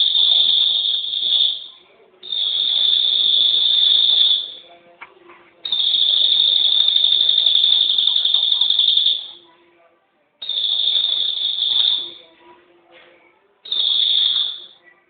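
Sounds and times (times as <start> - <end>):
songbird high-pitched trill: 0.0 - 4.6, 13.6 - 14.8.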